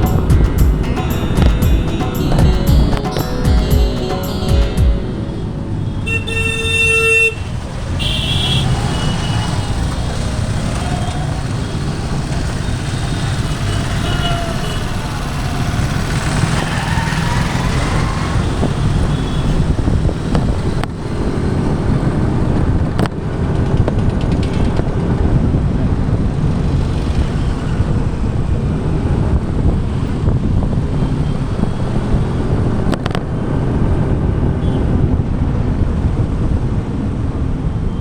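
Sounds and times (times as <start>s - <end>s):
higher-pitched horn toot: 0.0s - 8.6s
vehicle horn: 4.3s - 9.5s, 13.5s - 15.4s
engine wind and road rumble: 5.0s - 38.0s.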